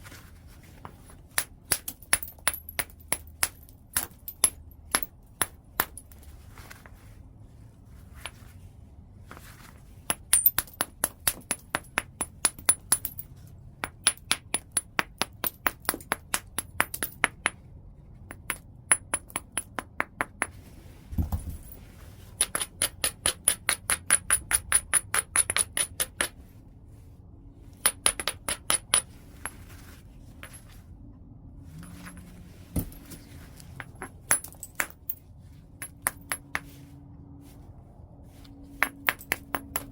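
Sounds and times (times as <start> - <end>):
stone tapping on flint: 38.8 - 39.9.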